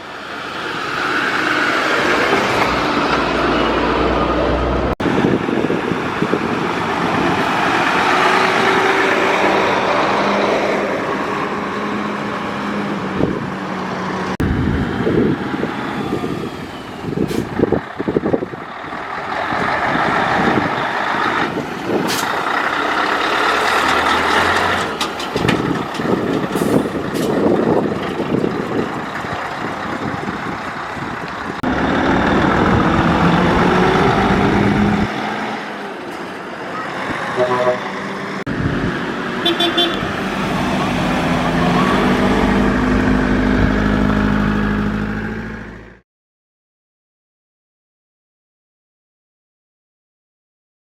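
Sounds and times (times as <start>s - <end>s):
heavy trucks driving past: 0.0s - 46.0s
short sharp sounds: 37.4s - 38.2s.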